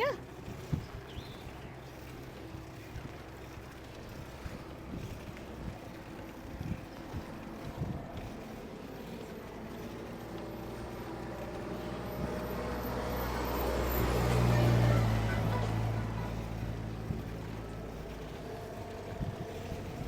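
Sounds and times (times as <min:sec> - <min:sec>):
wind on microphone: 0:04.1 - 0:08.4.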